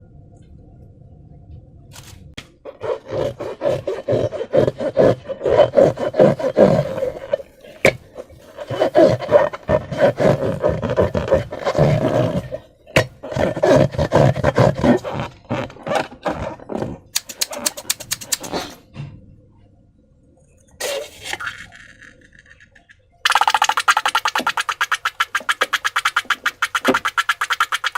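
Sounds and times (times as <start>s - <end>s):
balloon crackling rub: 2.7s - 18.8s, 20.8s - 21.7s, 23.3s - 27.9s
sharp clicks: 17.2s - 18.5s.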